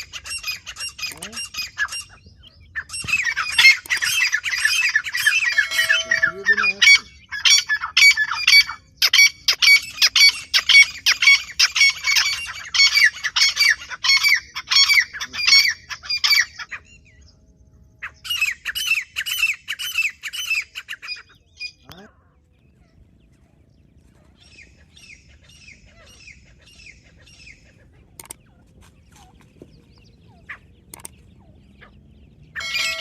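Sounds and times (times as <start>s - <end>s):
bird calling harsh repeated notes: 0.0s - 17.3s, 32.5s - 33.0s.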